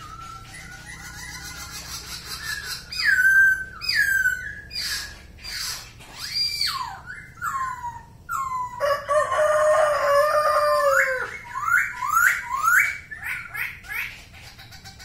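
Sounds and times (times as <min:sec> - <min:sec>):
bird singing whistled notes: 0:00.0 - 0:05.6, 0:11.3 - 0:14.0.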